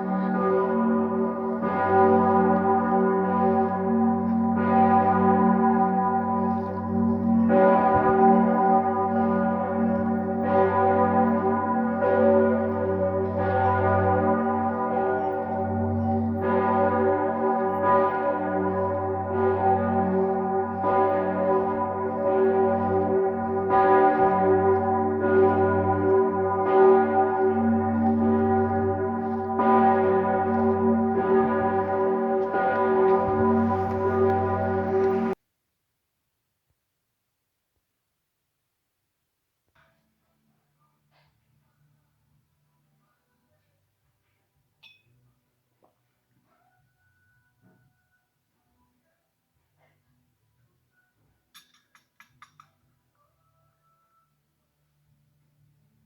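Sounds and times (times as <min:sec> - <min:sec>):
bells ringing: 0:00.0 - 0:35.4.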